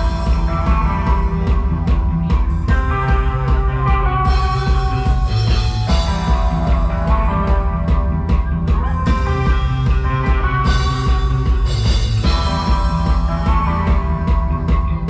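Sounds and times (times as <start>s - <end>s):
drum hits: 0.0s - 15.0s
heavy bass line: 0.0s - 15.0s
rock band playing: 0.0s - 15.0s.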